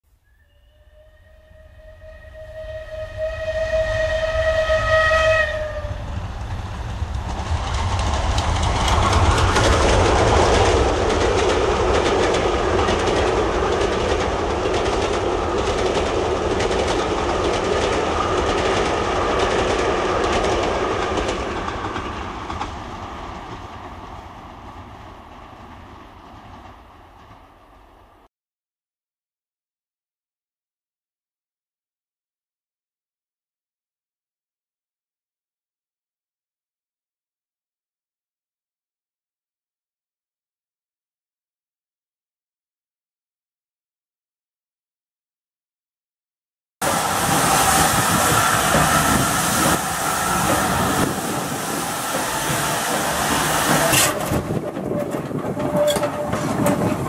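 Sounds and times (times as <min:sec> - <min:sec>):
train whistle blast: 0:00.2 - 0:06.1, 0:47.0 - 0:54.4
wheels clattering over rail joints: 0:48.2 - 0:57.0.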